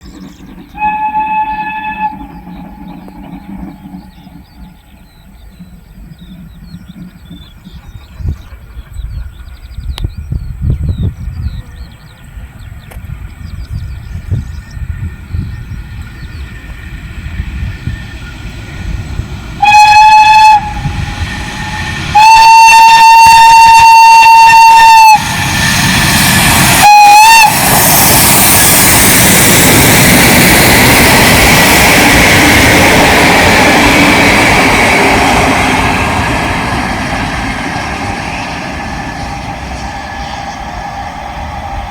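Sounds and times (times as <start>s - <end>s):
train rumbling past: 0.0s - 41.9s
steam whistle: 0.8s - 2.9s, 19.6s - 25.4s, 26.6s - 28.7s, 38.1s - 41.9s.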